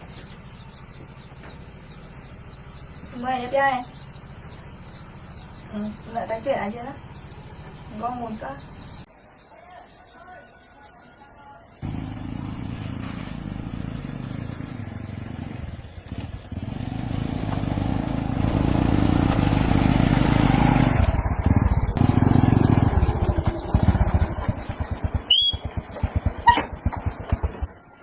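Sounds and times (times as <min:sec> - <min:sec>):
small engine running: 0:11.8 - 0:27.8.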